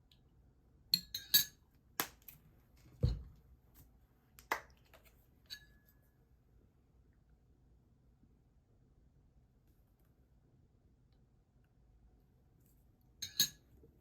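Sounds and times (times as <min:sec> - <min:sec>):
dishes and utensils clinking: 0:13.2 - 0:13.7.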